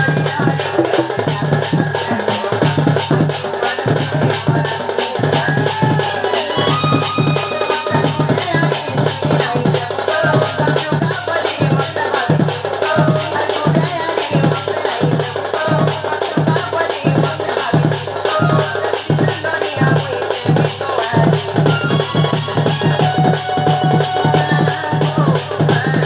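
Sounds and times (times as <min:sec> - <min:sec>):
drums playing steady beat: 0:00.0 - 0:26.0
folk melody line: 0:00.6 - 0:01.4.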